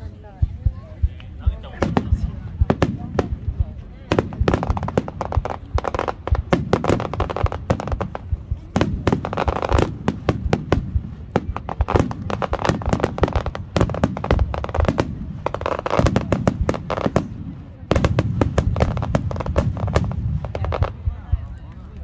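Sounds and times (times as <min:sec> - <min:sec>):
firework crackling: 0:00.6 - 0:22.0
firework shells bursting: 0:04.1 - 0:21.0.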